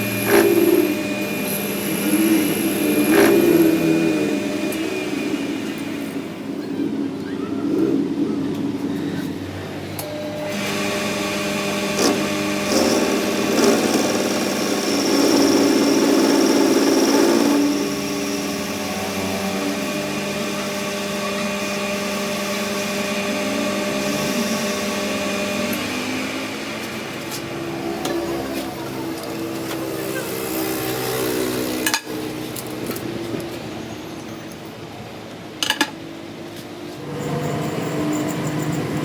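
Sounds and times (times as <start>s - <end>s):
rough cutting noise: 0.0s - 6.2s
machine motor humming: 0.0s - 7.8s, 9.9s - 33.2s.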